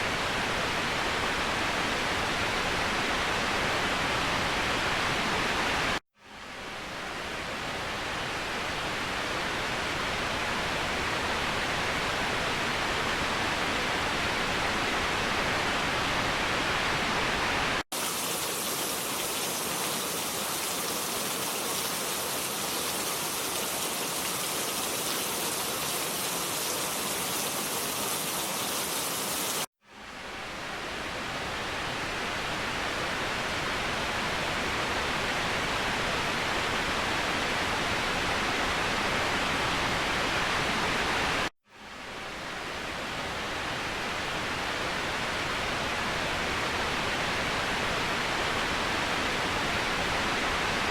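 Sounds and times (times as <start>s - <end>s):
waterfall rushing: 17.9s - 29.7s.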